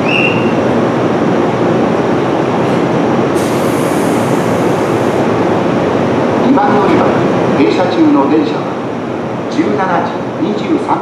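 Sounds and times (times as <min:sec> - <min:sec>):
electric train rumbling on rails: 0:00.0 - 0:11.0
brief high hiss: 0:03.4 - 0:05.2.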